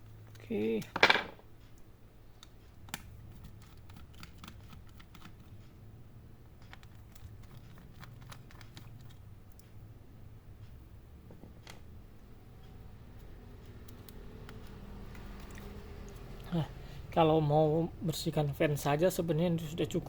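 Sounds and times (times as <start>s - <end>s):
small tools clicking and tapping: 6.5s - 9.8s.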